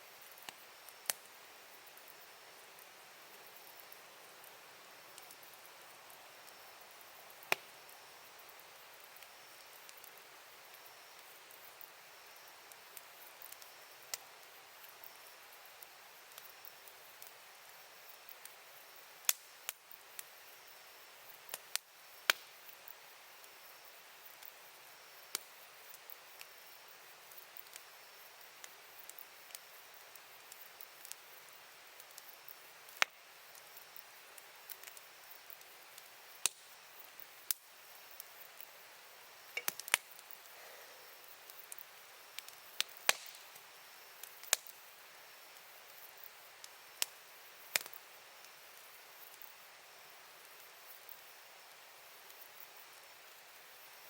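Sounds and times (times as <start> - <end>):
faint steady hiss: 0.0 - 54.0
campfire crackling: 0.1 - 54.0
burning wood popping: 21.5 - 22.6, 32.9 - 37.6, 39.4 - 44.8.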